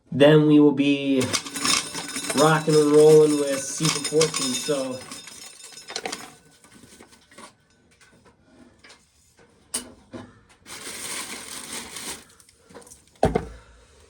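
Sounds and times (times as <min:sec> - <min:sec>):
rattling rush of corn kernels: 0:01.2 - 0:06.4, 0:10.7 - 0:12.4.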